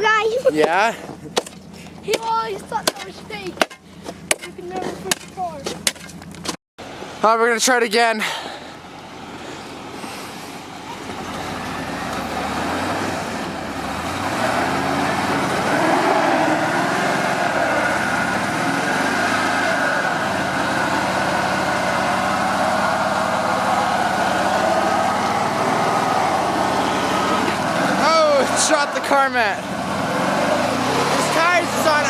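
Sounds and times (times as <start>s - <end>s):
truck engine revving: 8.8s - 32.0s.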